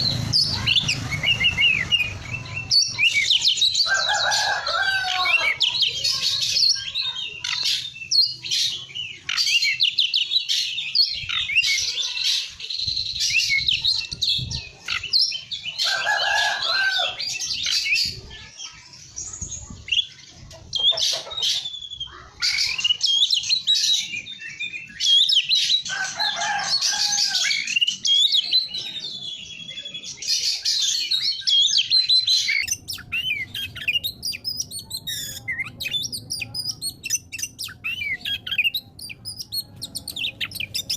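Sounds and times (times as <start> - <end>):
harsh bird phrases: 0.0 - 25.8, 26.4 - 40.9
bird singing whistles and trills: 21.6 - 25.8, 27.7 - 40.9.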